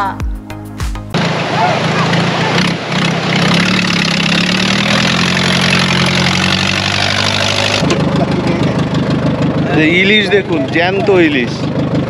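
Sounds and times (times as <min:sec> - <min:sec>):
engine idling with low hum: 0:04.6 - 0:12.0.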